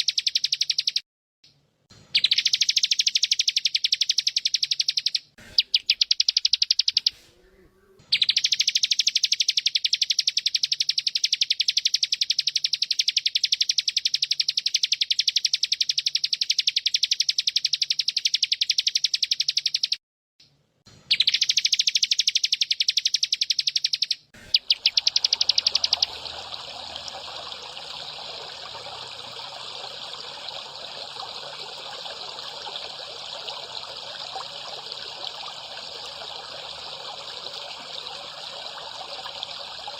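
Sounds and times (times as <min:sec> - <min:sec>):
trickling water: 0:02.2 - 0:07.1, 0:08.1 - 0:18.7, 0:24.4 - 0:39.9
songbird trilling: 0:02.2 - 0:20.0, 0:21.1 - 0:39.6.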